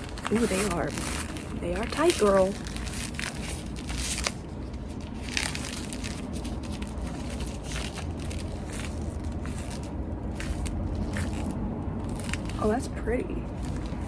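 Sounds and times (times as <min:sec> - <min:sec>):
plastic glove crinkling: 0:00.0 - 0:14.0.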